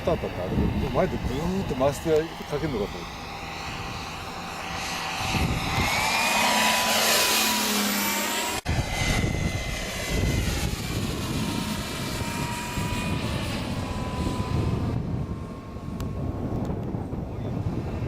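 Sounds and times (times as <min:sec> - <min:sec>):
model turboprop engine whine: 0:00.0 - 0:18.0.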